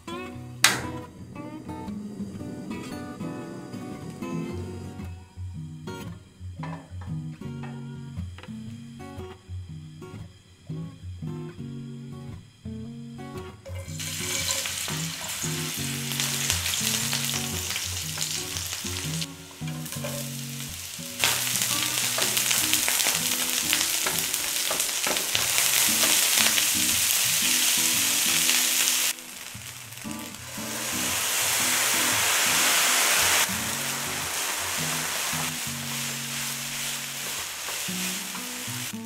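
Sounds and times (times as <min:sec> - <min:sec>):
food sizzling in hot oil: 0:13.7 - 0:39.0.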